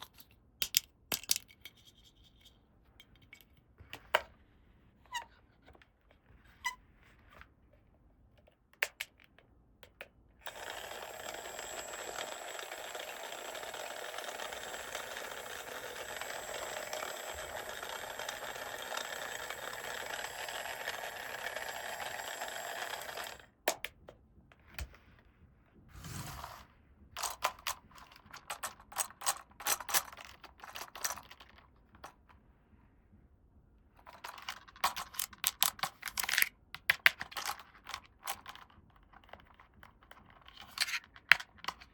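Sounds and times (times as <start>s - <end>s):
plastic toy parts clicking: 0.0s - 2.5s, 8.8s - 24.0s, 27.2s - 32.2s, 34.0s - 41.9s.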